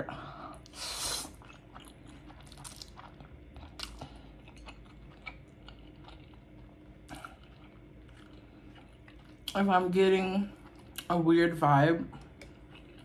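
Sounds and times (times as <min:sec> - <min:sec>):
quiet chewing with mouth clicks: 0:00.6 - 0:09.6, 0:12.1 - 0:13.0.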